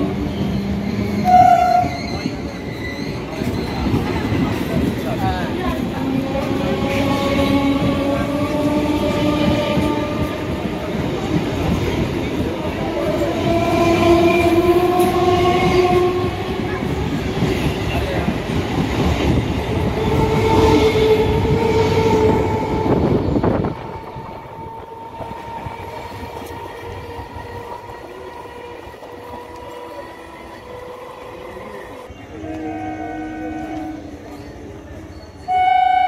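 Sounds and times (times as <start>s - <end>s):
train wheels clattering on rails: 0.0s - 31.0s.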